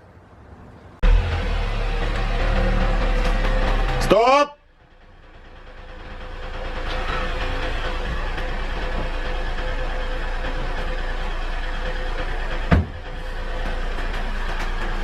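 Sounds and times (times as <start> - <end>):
vehicle engine and road noise: 0.0 - 15.0
sharp thump: 12.7 - 13.1.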